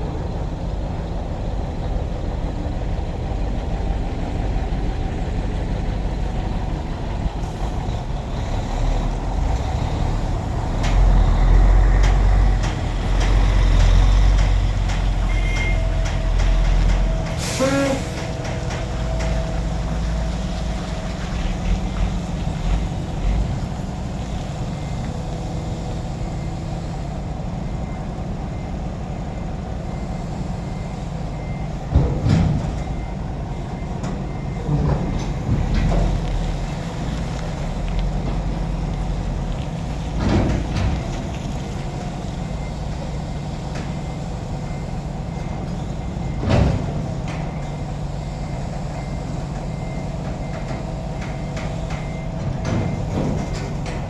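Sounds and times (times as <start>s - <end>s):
truck diesel engine idling: 0.0s - 54.0s.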